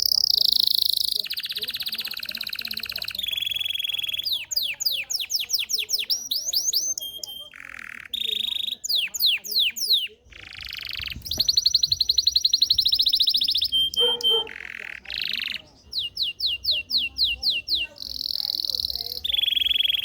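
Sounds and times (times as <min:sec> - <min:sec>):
canary singing: 0:00.0 - 0:20.0.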